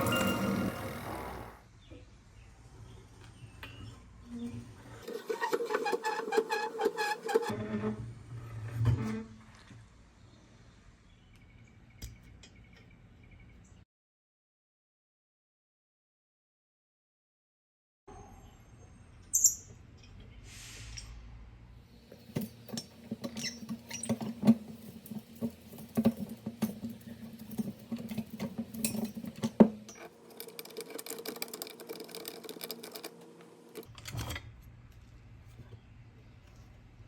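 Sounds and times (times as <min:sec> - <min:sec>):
metal parts clicking and scraping: 0:22.1 - 0:34.6.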